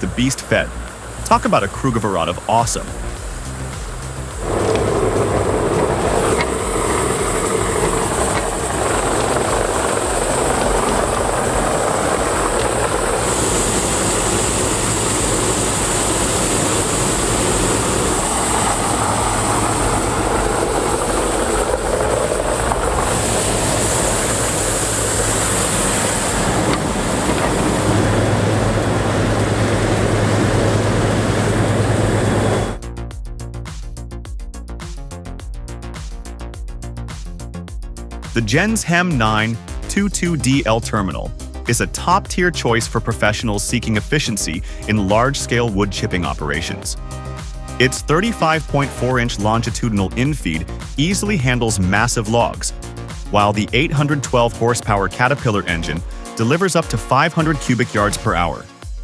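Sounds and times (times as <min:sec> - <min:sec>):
high hiss: 0:00.0 - 0:32.9, 0:43.4 - 0:59.0
low engine hum: 0:02.9 - 0:32.8
wood chipper running: 0:03.6 - 0:32.8.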